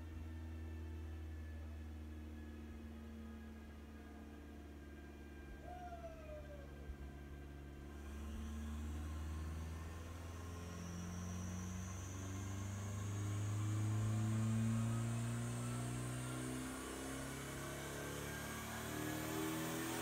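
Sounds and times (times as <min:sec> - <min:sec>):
high turbo whine: 0:00.0 - 0:20.0
car engine revving: 0:08.0 - 0:20.0.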